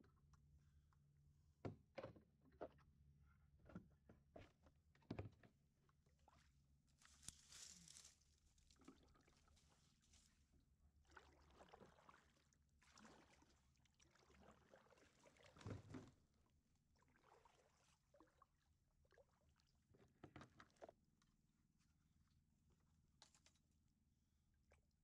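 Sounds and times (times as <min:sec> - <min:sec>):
paddle strokes swishing through water: 0:06.2 - 0:21.0.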